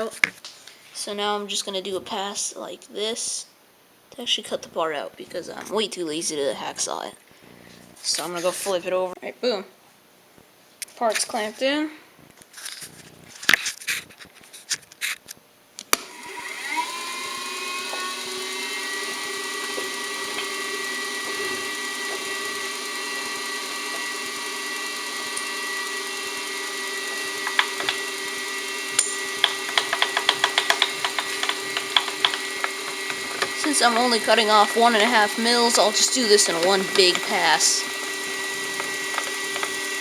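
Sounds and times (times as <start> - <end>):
milling machine spindle whine: 16.0 - 40.0
quick clicks: 28.9 - 40.0
sharp knocks: 29.0 - 34.0.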